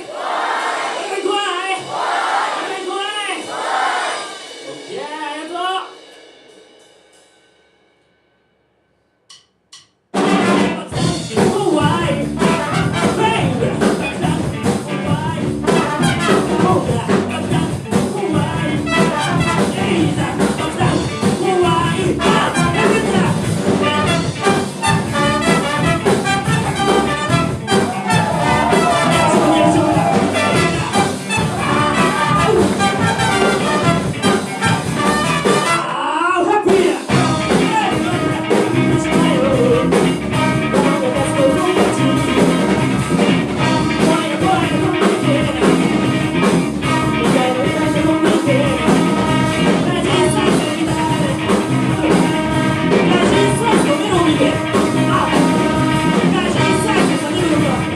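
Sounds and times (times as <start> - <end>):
live funk band playing: 10.2 - 36.0, 36.6 - 57.9
person singing: 27.7 - 34.6, 35.8 - 42.7, 43.6 - 46.2, 46.9 - 57.9.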